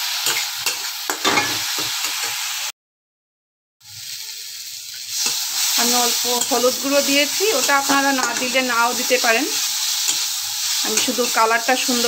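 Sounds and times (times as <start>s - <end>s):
masala sizzling: 0.0s - 2.8s, 3.8s - 12.0s
spatula scraping and stirring: 5.1s - 12.0s.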